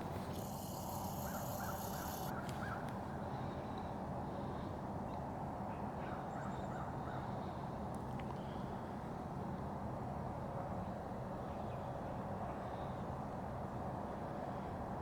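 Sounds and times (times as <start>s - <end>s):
faint bird calls: 0.0s - 2.8s.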